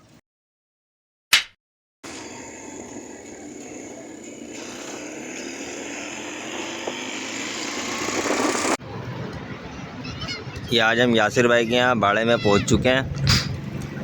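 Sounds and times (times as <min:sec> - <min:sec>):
vehicle engine running: 0:02.0 - 0:08.8.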